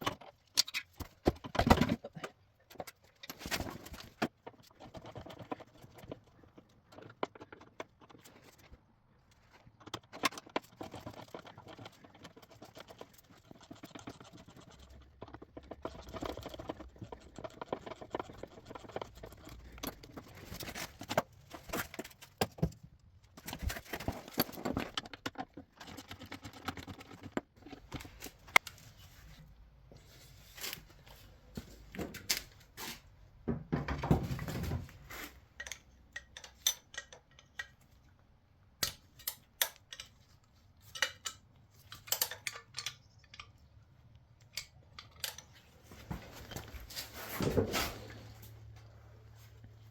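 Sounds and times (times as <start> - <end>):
metal tools clinking: 35.6 - 37.8, 39.1 - 43.6.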